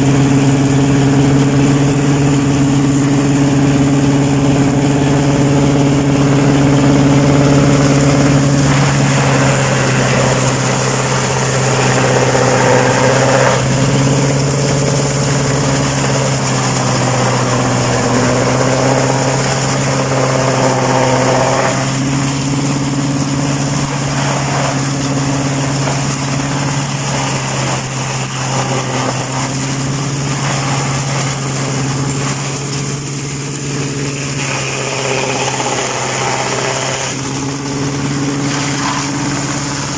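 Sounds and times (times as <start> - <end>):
tractor engine humming: 0.0 - 39.9.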